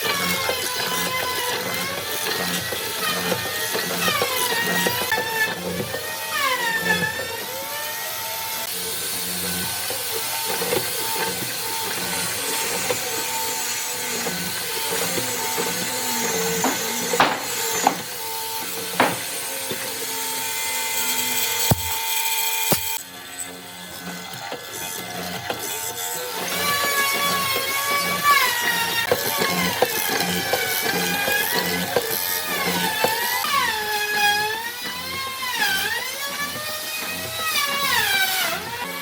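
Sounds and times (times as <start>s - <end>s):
power tool working wood: 0.0s - 39.0s
sharp knocks: 16.6s - 18.1s, 19.0s - 19.3s, 21.7s - 22.1s, 22.7s - 23.0s.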